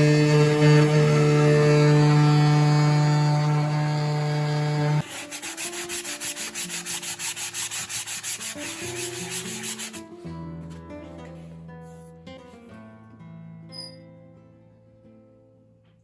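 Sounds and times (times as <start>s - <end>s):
cnc router motor hum: 0.0s - 5.0s
cutter rasping rhythmically: 0.0s - 10.0s.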